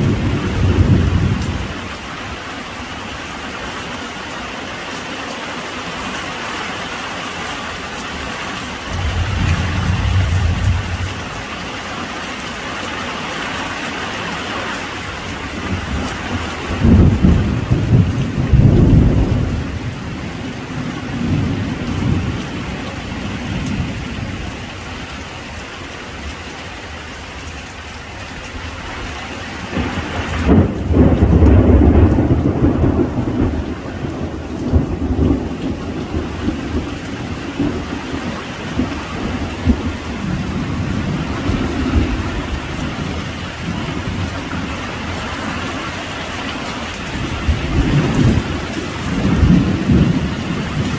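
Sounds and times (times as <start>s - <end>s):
thunder rumbling: 0.0s - 2.0s, 8.7s - 11.7s, 15.5s - 24.3s, 29.6s - 45.4s, 47.1s - 50.9s
heavy rain: 0.0s - 50.9s.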